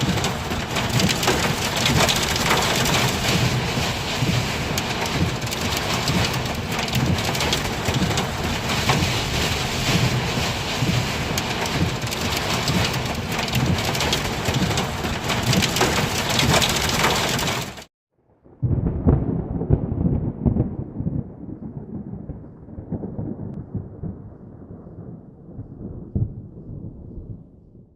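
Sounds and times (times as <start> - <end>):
gusting wind: 0.0 - 17.8
heavy rain beating on surfaces: 0.0 - 17.9.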